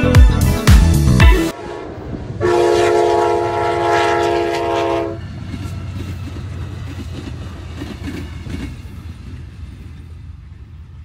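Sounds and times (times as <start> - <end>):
train horn chord: 1.5 - 5.3
train clattering on rails: 4.8 - 11.0.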